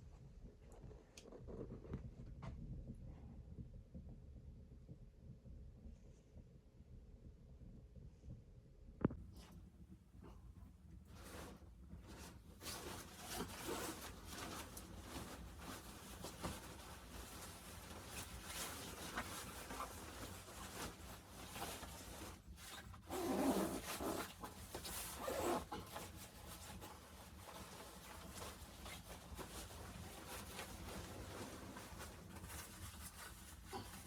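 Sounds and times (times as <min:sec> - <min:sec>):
rustling handling noise: 0:10.2 - 0:34.0.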